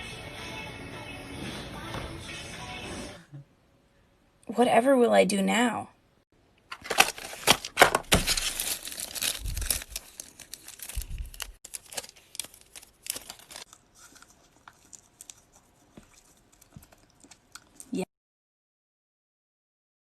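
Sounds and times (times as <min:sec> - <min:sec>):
crinkling handling noise: 0:06.7 - 0:17.8.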